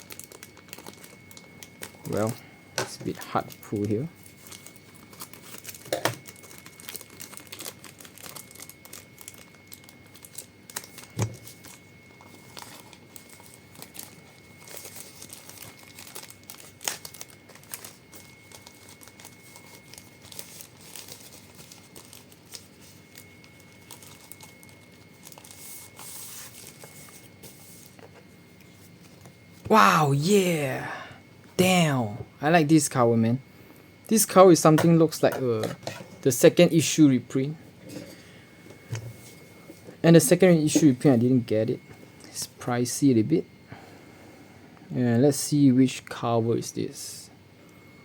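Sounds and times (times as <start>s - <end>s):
wrapper crinkling and tearing: 0.0s - 2.4s, 3.4s - 28.1s.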